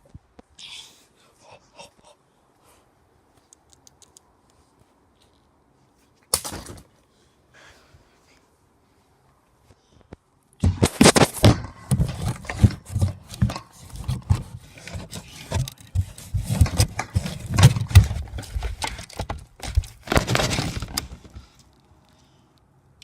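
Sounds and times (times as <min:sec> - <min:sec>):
pole knocking and scraping cardboard: 0:10.6 - 0:21.5.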